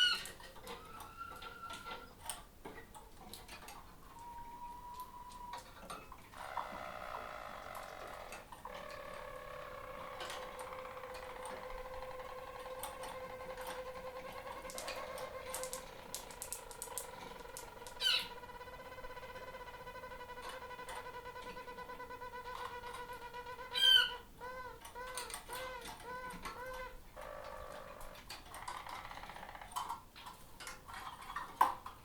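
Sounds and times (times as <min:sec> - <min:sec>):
canary singing rolling song: 0:00.0 - 0:32.0
faint clicks: 0:04.9 - 0:23.8
sharp loud chirp: 0:16.6 - 0:18.4.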